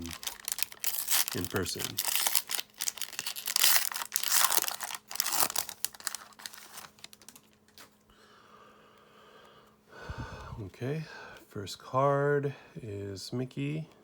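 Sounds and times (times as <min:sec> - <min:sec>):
wax paper crinkling and tearing: 0:00.0 - 0:08.0.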